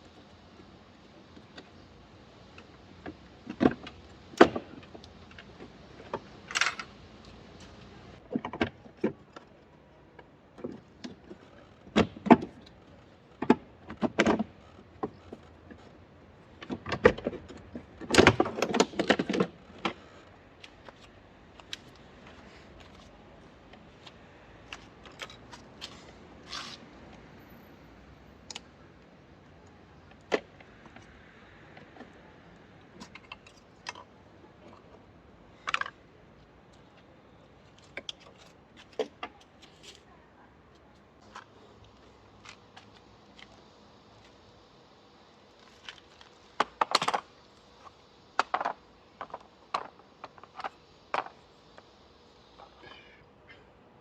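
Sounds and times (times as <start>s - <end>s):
tools and metal parts clinking: 6.4s - 7.0s.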